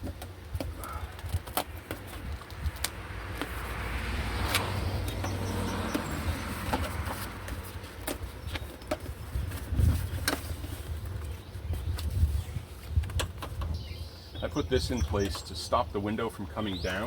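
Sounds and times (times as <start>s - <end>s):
clicks and crackles: 0.0s - 3.6s.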